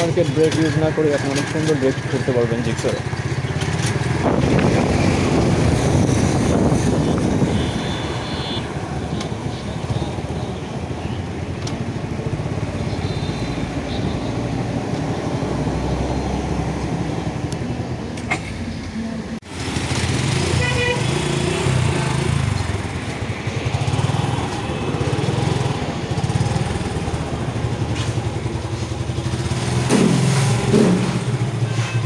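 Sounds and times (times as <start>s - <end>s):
motorcycle engine running: 0.0s - 8.0s, 19.5s - 31.7s.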